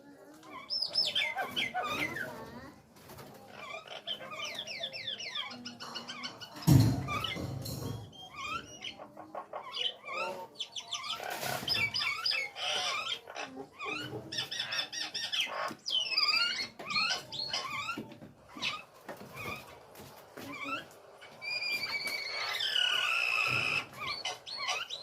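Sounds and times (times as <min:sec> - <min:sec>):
myna bird whistling and squawking: 0:21.4 - 0:25.0.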